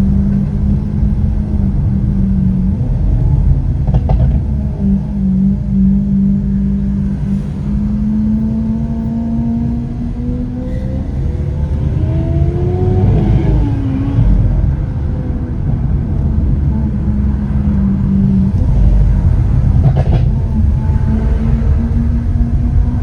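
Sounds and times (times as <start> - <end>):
car engine running: 0.0 - 23.0
road rumble: 0.0 - 23.0.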